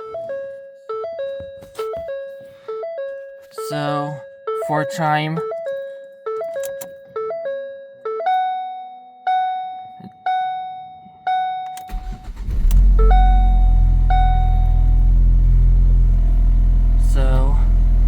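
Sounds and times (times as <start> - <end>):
dashboard warning chime: 0.0 - 18.0
car engine cranking and running: 11.8 - 18.0.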